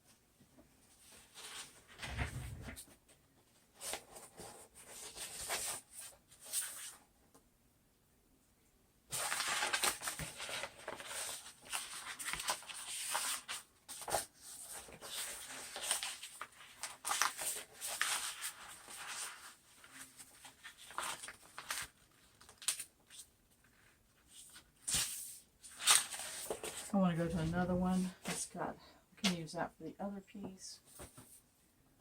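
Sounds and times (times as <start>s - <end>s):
paper crinkling and rustling: 1.0s - 3.0s, 9.1s - 28.4s, 30.9s - 31.4s.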